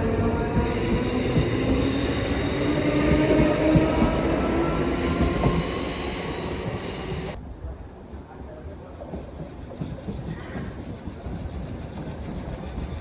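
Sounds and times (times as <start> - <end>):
sustained whining tones: 0.0 - 7.4
train rumble: 0.0 - 13.0.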